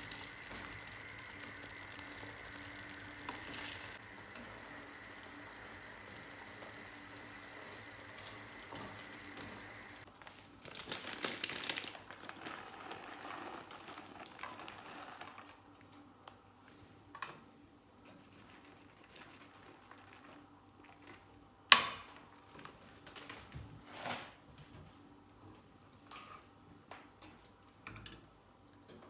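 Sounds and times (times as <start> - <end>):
food sizzling: 0.0 - 10.1.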